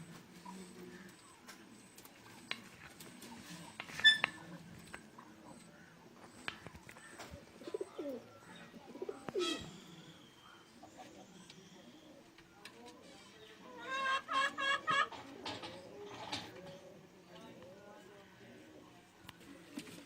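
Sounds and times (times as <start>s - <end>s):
pigeons cooing: 6.4s - 12.4s.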